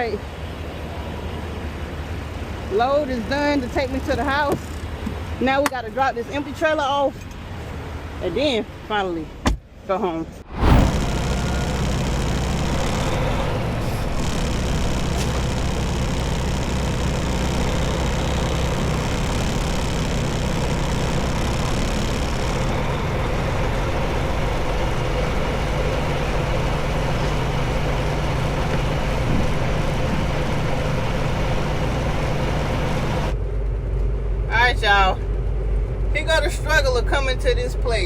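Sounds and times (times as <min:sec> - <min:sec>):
road noise: 0:00.0 - 0:38.0
truck diesel engine droning: 0:10.5 - 0:38.0.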